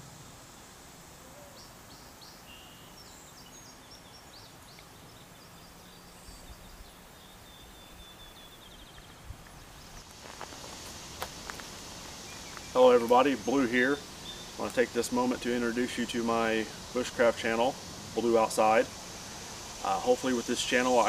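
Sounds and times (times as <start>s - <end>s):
steady background hiss: 0.0s - 21.0s
birds chirping: 1.2s - 21.0s
rapid bird trill: 12.2s - 14.7s.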